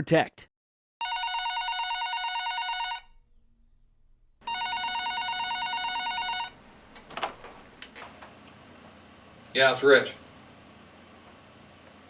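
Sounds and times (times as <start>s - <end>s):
telephone ringing with warbling trill: 1.0s - 3.2s, 4.4s - 6.6s.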